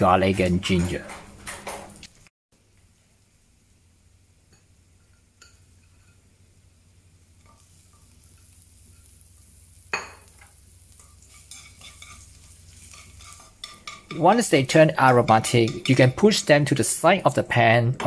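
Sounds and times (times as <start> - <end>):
garlic sizzling in oil: 2.8 - 16.8.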